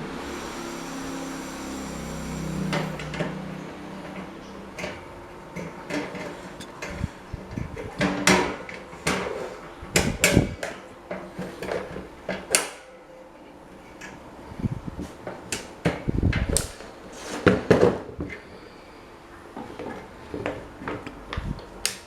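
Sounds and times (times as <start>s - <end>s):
electric fan motor hum: 0.0s - 9.0s, 13.7s - 17.1s
fan clicks and knocks: 2.7s - 12.8s, 15.0s - 18.3s.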